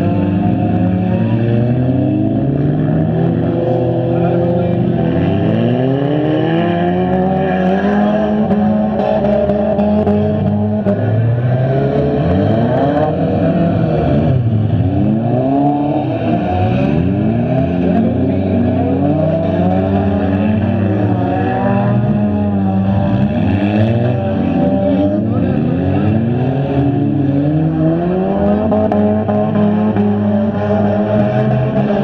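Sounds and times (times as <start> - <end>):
car engines revving: 0.0 - 32.0.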